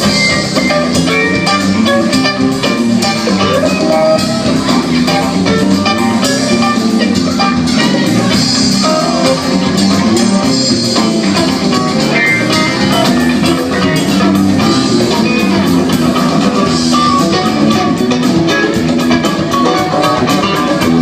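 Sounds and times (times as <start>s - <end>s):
guitar: 0.0s - 21.0s
live rock band playing: 0.0s - 21.0s
steady drum beat: 0.0s - 21.0s.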